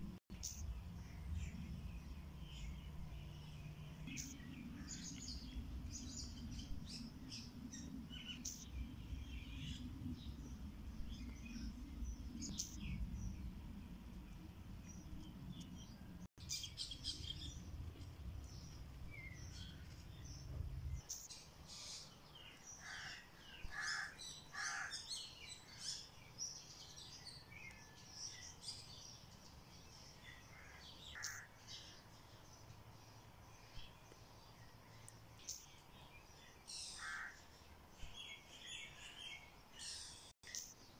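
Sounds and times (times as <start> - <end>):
low rumble: 0.0 - 21.1
songbirds chirping: 0.1 - 40.9.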